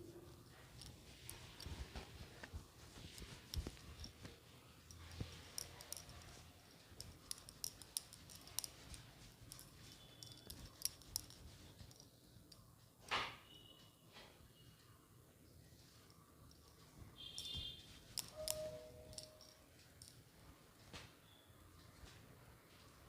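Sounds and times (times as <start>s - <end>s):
towel rustling on hair: 0.0s - 4.6s.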